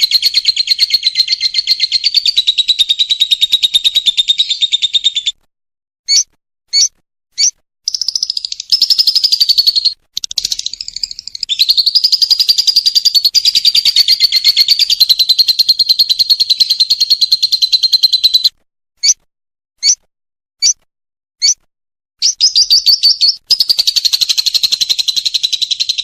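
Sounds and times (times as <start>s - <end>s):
lovebird chattering trill: 0.0s - 5.3s, 6.1s - 19.2s, 22.2s - 26.0s
short sharp bird chirps: 6.0s - 16.0s, 16.8s - 26.0s.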